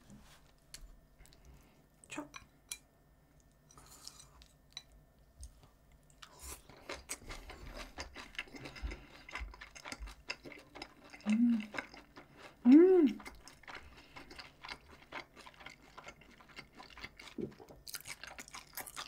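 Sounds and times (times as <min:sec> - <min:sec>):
faint chewing with clicks: 0:00.6 - 0:02.3, 0:03.3 - 0:19.0.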